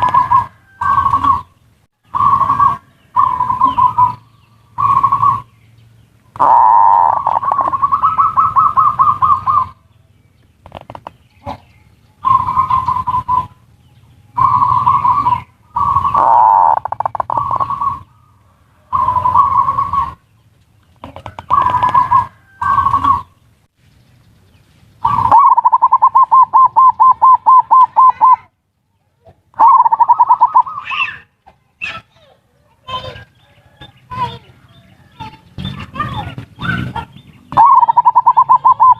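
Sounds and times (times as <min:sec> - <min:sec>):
doves cooing: 0:00.0 - 0:23.5, 0:25.0 - 0:28.6, 0:29.2 - 0:38.9.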